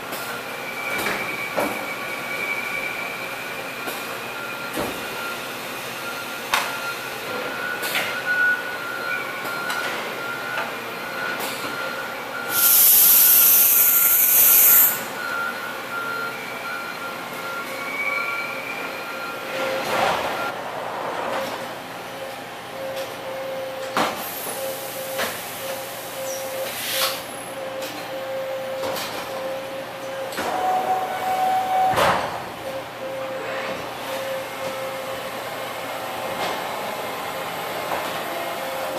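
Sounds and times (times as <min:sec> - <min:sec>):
loud hiss: 0:12.5 - 0:15.0.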